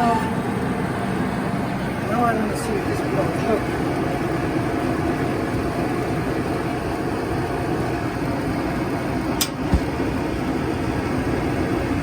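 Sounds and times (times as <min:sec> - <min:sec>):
dryer drum rumbling: 0:00.0 - 0:12.0
sharp click: 0:09.4 - 0:09.9
low thump: 0:09.6 - 0:10.1.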